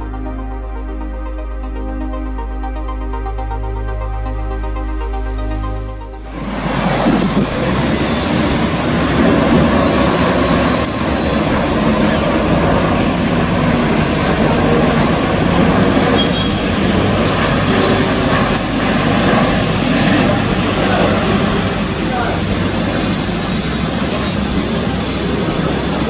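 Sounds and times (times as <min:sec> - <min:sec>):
jet engines rushing: 0:06.2 - 0:26.0.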